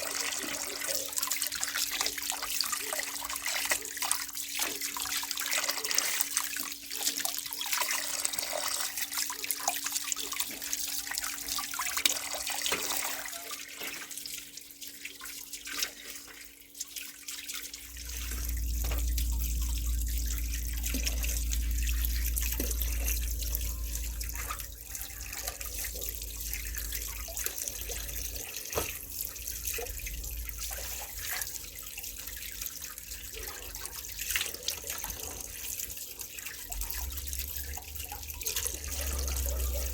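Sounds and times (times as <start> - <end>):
water running and splashing: 0.0 - 39.9
low rumble: 18.0 - 23.4.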